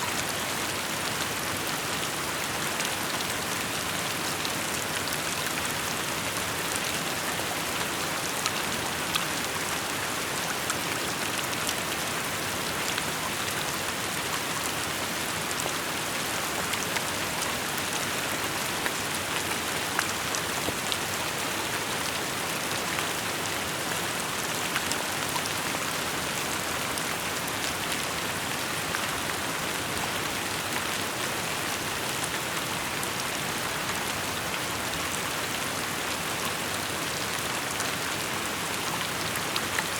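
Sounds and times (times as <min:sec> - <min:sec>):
rain pattering: 0:00.1 - 0:23.1.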